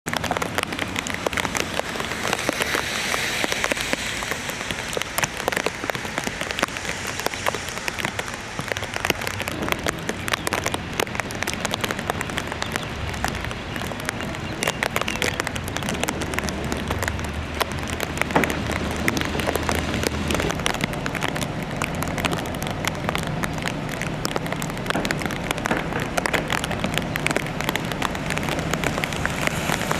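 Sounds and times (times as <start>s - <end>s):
rain falling: 0.0s - 29.9s
raindrops hitting close: 0.0s - 29.9s
low rumble: 0.1s - 29.9s.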